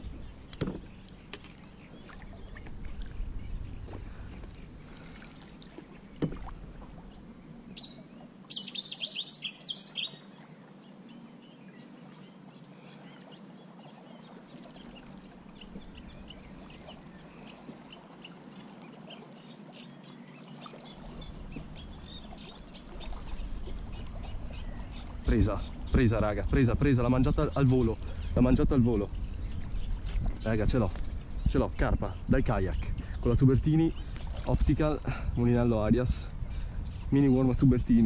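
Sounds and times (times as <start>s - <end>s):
birds chattering and chirping: 0.0s - 38.0s
quiet water: 0.0s - 38.0s
single knock: 0.6s - 0.9s.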